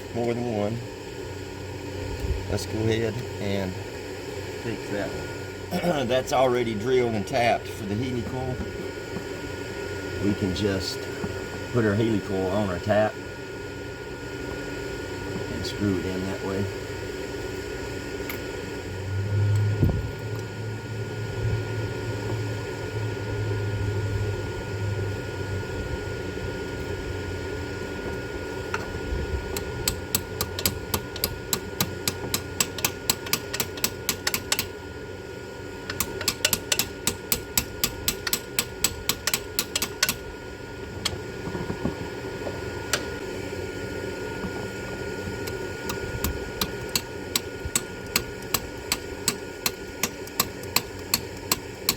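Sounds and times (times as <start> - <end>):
shop fan droning: 0.0 - 51.9
ratchet wrench clicking: 29.6 - 34.7, 35.9 - 40.2, 45.4 - 51.9.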